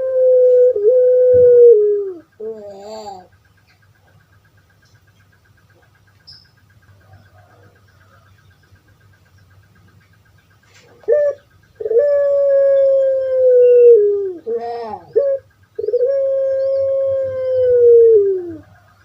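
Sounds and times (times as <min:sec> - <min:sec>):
dove cooing: 0:00.0 - 0:04.4, 0:05.7 - 0:09.1, 0:10.6 - 0:19.0.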